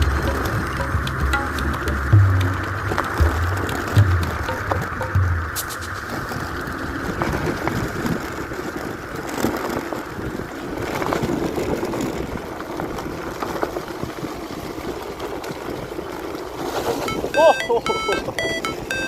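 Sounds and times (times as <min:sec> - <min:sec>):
knocks and rattles: 0:00.0 - 0:05.6
wind rush: 0:00.0 - 0:09.2.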